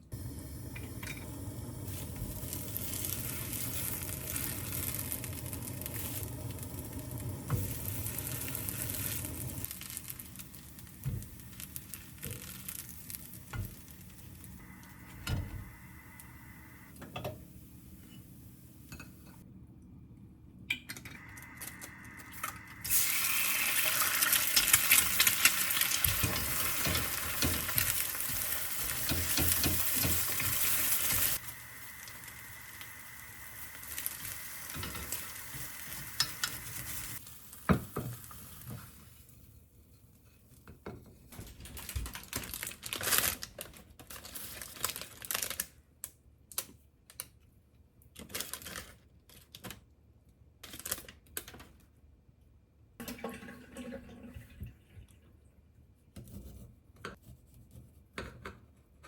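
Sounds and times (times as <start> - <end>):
food sizzling in a pan: 0.2 - 16.9, 21.2 - 39.5.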